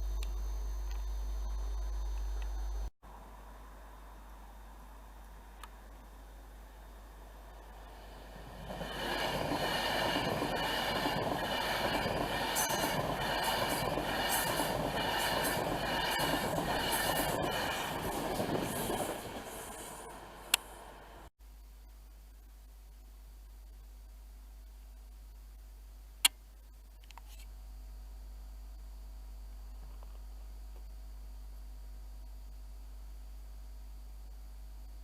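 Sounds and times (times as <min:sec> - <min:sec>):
train wheels on rails: 0:07.7 - 0:21.3.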